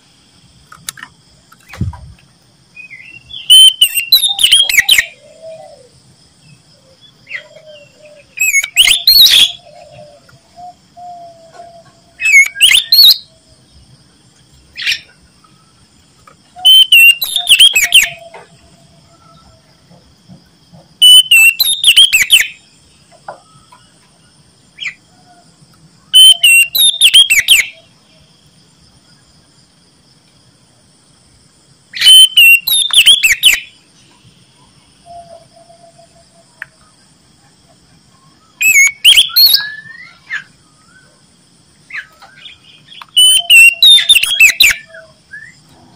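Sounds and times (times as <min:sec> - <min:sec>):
bird singing whistled phrases: 0:02.8 - 0:05.2, 0:07.8 - 0:09.6, 0:12.2 - 0:13.3, 0:16.6 - 0:18.3, 0:21.0 - 0:22.6, 0:26.1 - 0:27.8, 0:32.0 - 0:33.7, 0:38.6 - 0:41.1, 0:43.0 - 0:45.6.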